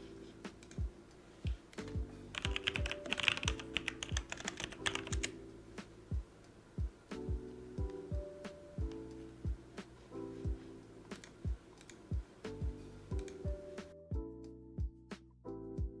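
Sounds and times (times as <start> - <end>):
background music with drum beat: 0.5 - 9.9, 10.5 - 15.2
computer keyboard typing: 1.7 - 5.4, 11.1 - 12.0, 13.1 - 13.5.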